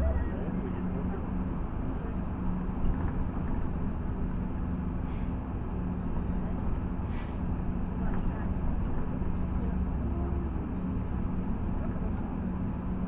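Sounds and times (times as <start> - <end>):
constant hum: 0.0 - 4.8
bus engine and road rumble: 0.0 - 13.0.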